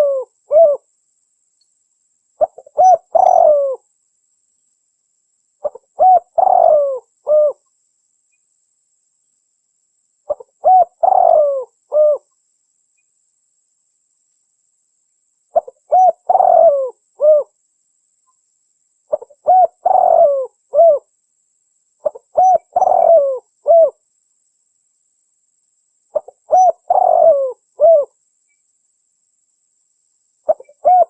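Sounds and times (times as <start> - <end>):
dove cooing: 0.0 - 0.9, 2.4 - 3.8, 5.6 - 7.6, 10.3 - 12.3, 15.6 - 17.5, 19.1 - 21.1, 22.0 - 24.0, 26.1 - 28.2, 30.5 - 31.0.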